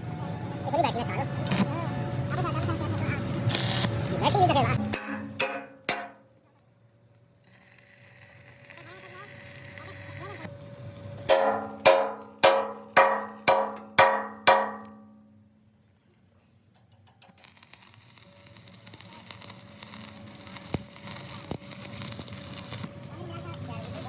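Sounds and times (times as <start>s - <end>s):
hammer striking steel: 4.8s - 6.4s, 11.3s - 15.3s.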